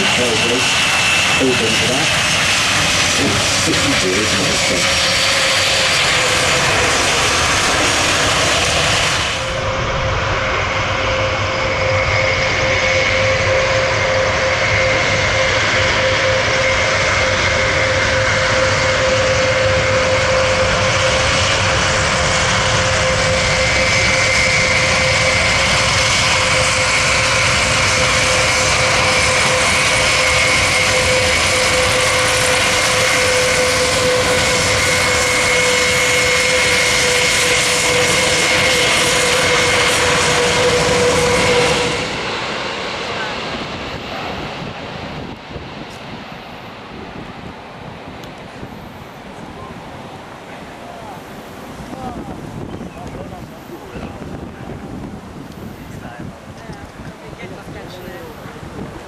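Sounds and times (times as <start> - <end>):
turboprop engines running: 0.0 - 59.0.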